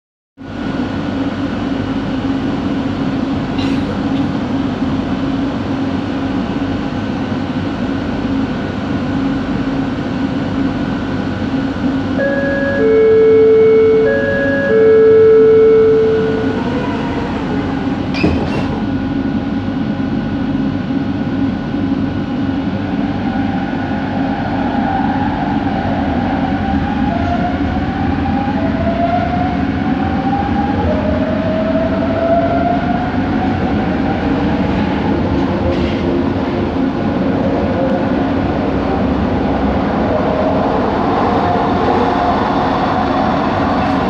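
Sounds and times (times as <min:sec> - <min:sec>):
metro train rumble: 0:00.4 - 0:44.0
rising motor whine: 0:12.1 - 0:18.2.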